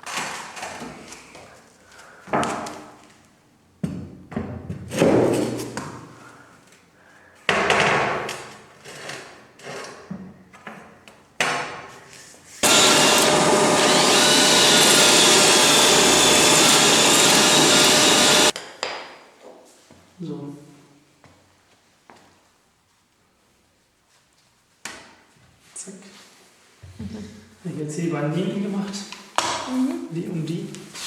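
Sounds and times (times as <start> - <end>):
power tool running: 12.6 - 18.6.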